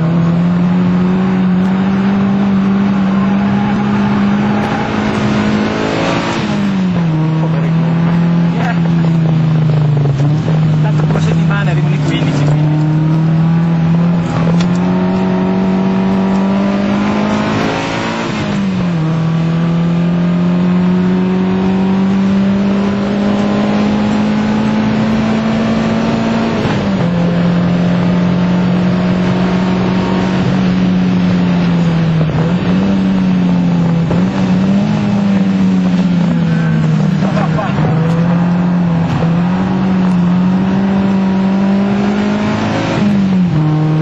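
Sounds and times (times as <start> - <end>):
car engine pulling hard: 0.0 - 44.0
road and wind noise: 0.0 - 44.0.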